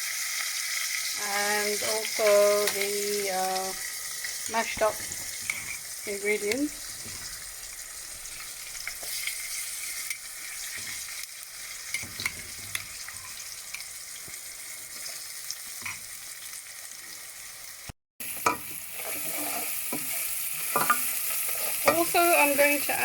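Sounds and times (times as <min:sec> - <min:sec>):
spices sizzling in hot oil: 0:00.0 - 0:23.0
spoon scraping and tapping pan: 0:04.8 - 0:05.8, 0:11.9 - 0:13.9, 0:18.4 - 0:22.2.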